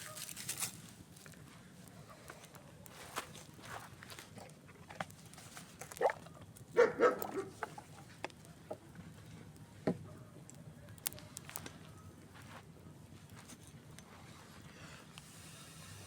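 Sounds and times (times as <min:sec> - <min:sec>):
dog barking: 0:06.0 - 0:06.2, 0:06.8 - 0:07.6, 0:10.0 - 0:11.0
campfire crackling with pops: 0:10.4 - 0:11.7.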